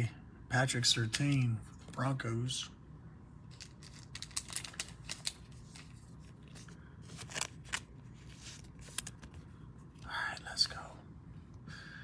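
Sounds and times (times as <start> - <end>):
cards scraping and clicking: 3.5 - 9.5.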